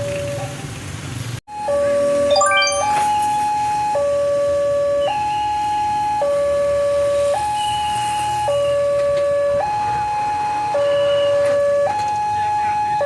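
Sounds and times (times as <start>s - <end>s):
level crossing two-tone alarm: 2.3s - 3.4s.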